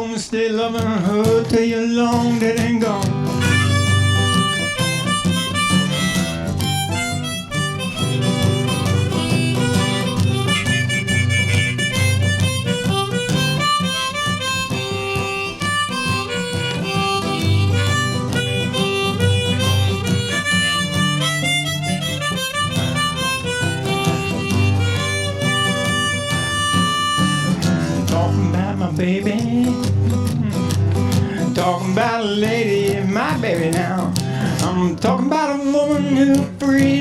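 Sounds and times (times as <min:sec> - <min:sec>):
strummed acoustic guitar: 0:00.0 - 0:37.0
harmonica solo: 0:03.3 - 0:28.4.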